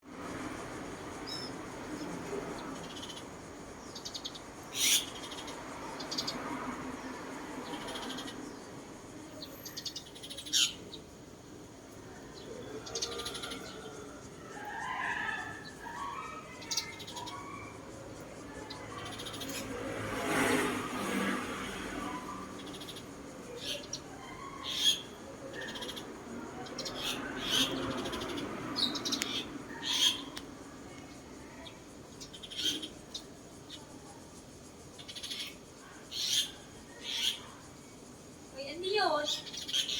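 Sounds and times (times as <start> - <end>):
bird singing chirps and trills: 1.1 - 20.1, 22.1 - 39.9
bird trilling: 3.9 - 6.4, 9.6 - 10.9, 22.2 - 26.1, 26.7 - 30.4, 32.2 - 33.3.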